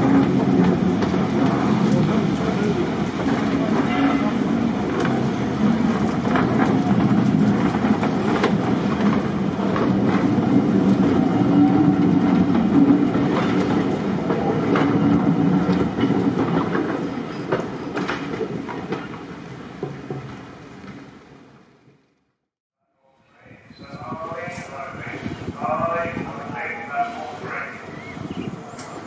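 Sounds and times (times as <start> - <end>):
wheels clicking over rail joints: 0.0 - 21.1
train rumbling: 0.0 - 22.2, 23.3 - 29.0.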